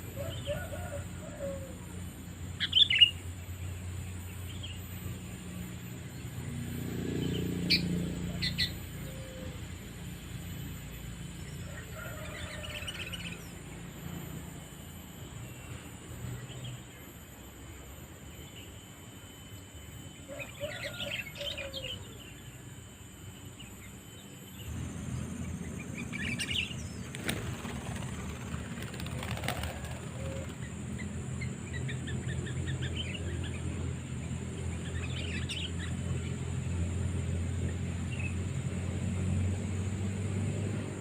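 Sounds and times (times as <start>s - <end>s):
bird chirping phrases: 2.4s - 9.6s.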